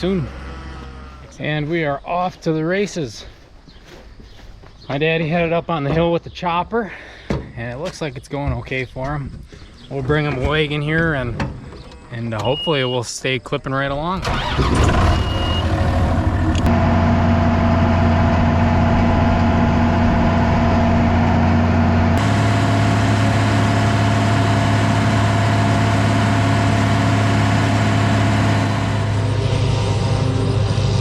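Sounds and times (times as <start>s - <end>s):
tractor diesel engine running: 14.2s - 31.0s.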